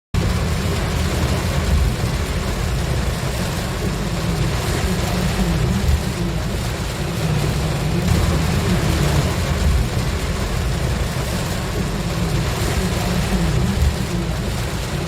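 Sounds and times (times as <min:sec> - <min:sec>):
car engine and tyres rumbling: 0:00.1 - 0:15.0
rain and road spray hiss: 0:00.2 - 0:15.0.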